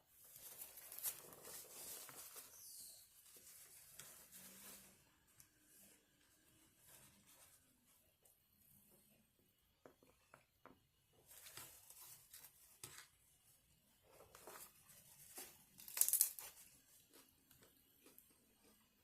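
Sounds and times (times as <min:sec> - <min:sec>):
paper wrapping crinkling and tearing: 0:00.2 - 0:05.0, 0:14.4 - 0:17.0.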